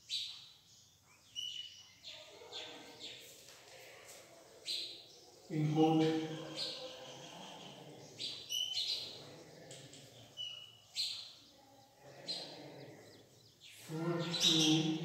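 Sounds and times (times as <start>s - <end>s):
small birds chirping: 0.0s - 15.0s
man speaking: 5.5s - 7.7s, 13.8s - 15.0s.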